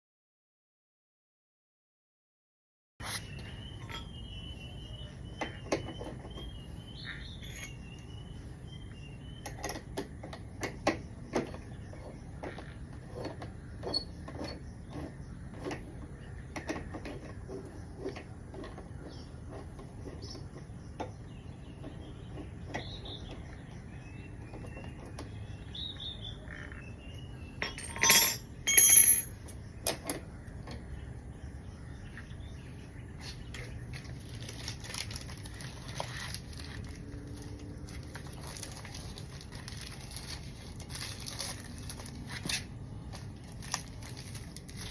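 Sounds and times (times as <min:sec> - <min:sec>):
bird chirping faintly: 0:03.0 - 0:28.7
ringing metallic clatter: 0:27.6 - 0:29.6
metal tools clicking and clinking: 0:27.6 - 0:30.2.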